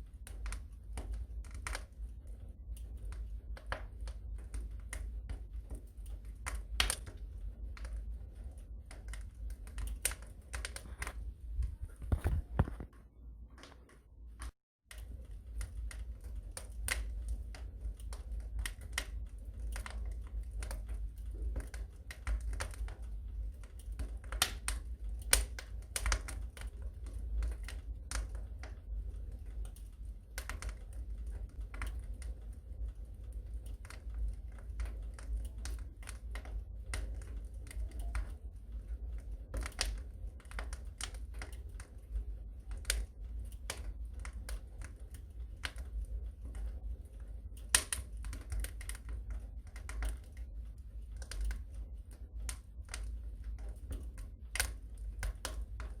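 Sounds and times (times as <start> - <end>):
low steady rumble: 0.0 - 56.0
wood fire crackling and popping: 0.0 - 56.0.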